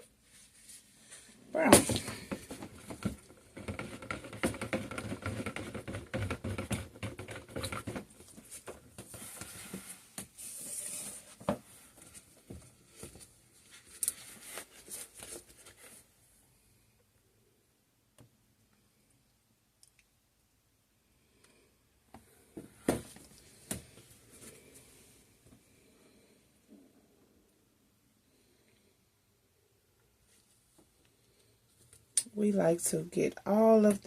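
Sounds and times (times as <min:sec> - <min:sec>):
utensils clicking tapping and scraping: 0:02.9 - 0:08.0.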